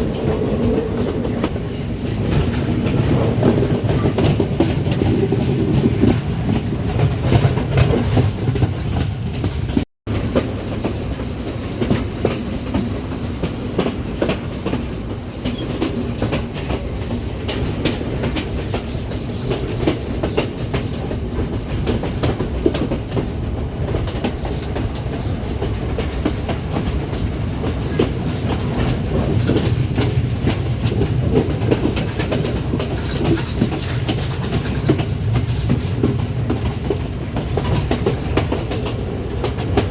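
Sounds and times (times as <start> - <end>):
train rumbling on track: 0.0 - 39.9
wheels clattering over rail joints: 25.9 - 39.9.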